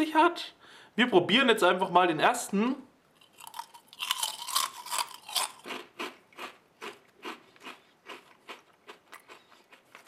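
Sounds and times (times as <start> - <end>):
crackers crunching while chewed: 3.2 - 10.0.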